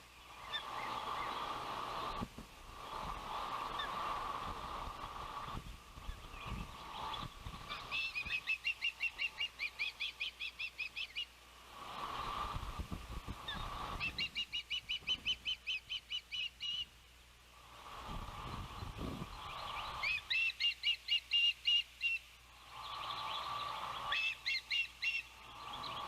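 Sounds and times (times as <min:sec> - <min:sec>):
wind buffeting microphone: 0:01.0 - 0:08.4, 0:11.8 - 0:14.4, 0:17.8 - 0:20.3
osprey whistled chirps: 0:05.4 - 0:11.3, 0:13.4 - 0:16.9, 0:19.3 - 0:26.0.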